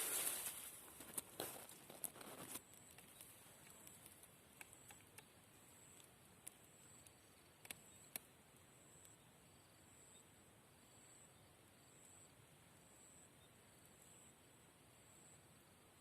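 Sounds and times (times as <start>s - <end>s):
soft rustle: 0.0s - 5.1s
faint sharp ticks: 2.0s - 8.3s.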